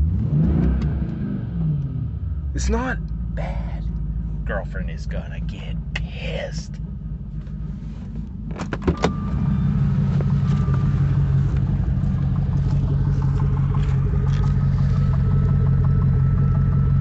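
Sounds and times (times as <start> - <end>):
car engine idling: 1.1 - 17.0.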